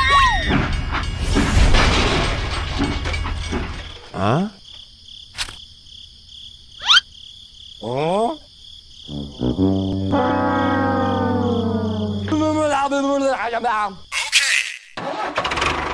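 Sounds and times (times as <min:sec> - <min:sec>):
high insect-like chirping: 0:03.8 - 0:15.0
sharp click: 0:05.4 - 0:05.6.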